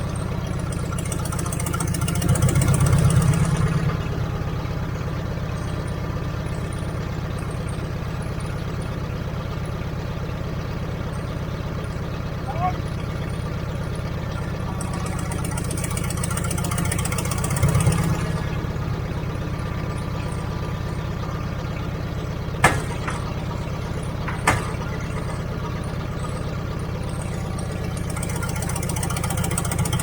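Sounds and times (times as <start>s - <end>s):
heavy equipment engine running: 0.0s - 30.0s
sharp knocks: 22.6s - 25.2s.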